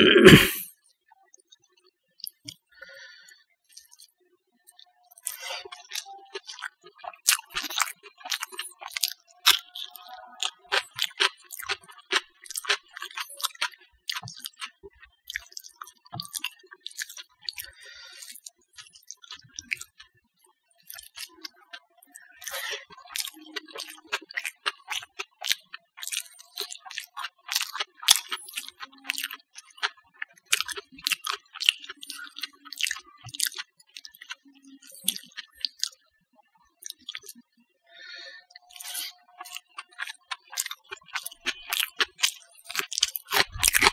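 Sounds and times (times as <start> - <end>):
wet chewing and lip-smacking: 2.2 - 2.7, 3.7 - 4.1, 4.7 - 20.1, 20.7 - 36.0, 36.8 - 37.4, 38.6 - 43.9.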